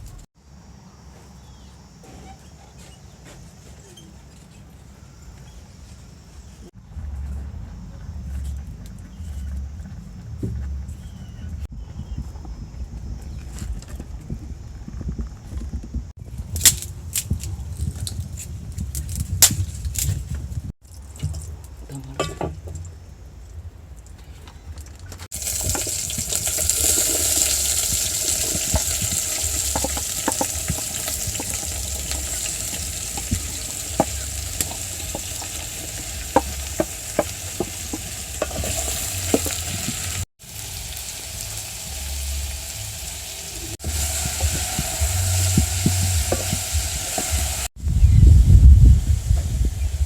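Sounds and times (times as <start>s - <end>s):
food sizzling in a pot: 25.3s - 47.8s.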